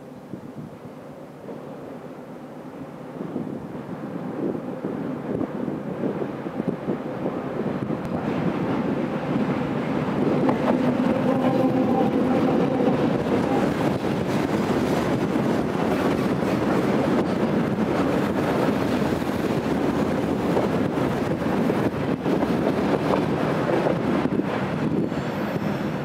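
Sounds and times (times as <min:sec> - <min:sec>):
diesel locomotive engine hum: 0:00.0 - 0:26.0
train wheels rumbling on rail: 0:00.0 - 0:26.0.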